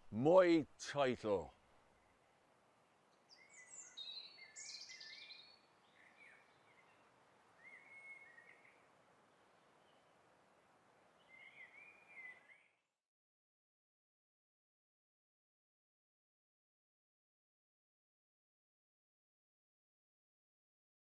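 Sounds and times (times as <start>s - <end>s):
low background hiss: 0.0s - 12.8s
birds chirping: 3.2s - 8.9s.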